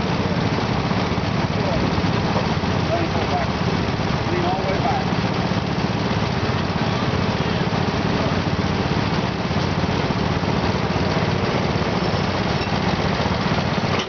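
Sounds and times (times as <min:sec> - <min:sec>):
garden tractor engine running: 0:00.0 - 0:14.0.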